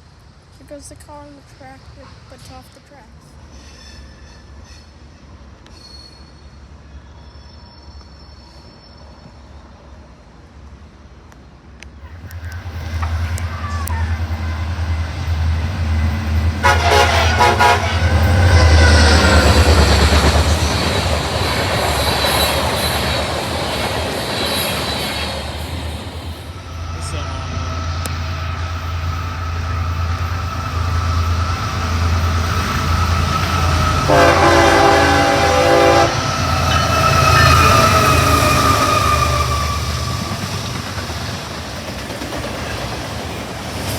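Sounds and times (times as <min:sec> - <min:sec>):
rail noise: 0:00.0 - 0:43.9
train engine rumble: 0:00.0 - 0:43.9
train horn: 0:16.6 - 0:20.0, 0:33.3 - 0:40.4.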